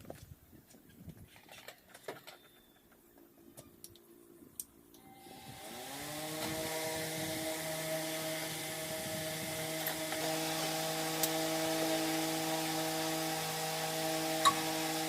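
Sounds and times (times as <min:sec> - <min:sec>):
power tool motor whine: 0:05.0 - 0:15.0.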